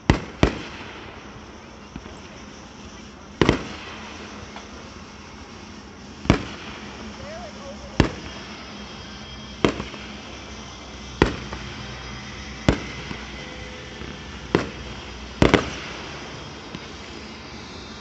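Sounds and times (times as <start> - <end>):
small firework pops: 0.0 - 4.9, 5.7 - 8.5, 9.6 - 10.2, 11.2 - 11.8, 12.6 - 17.2
firework shells booming: 0.0 - 8.9, 9.5 - 17.2.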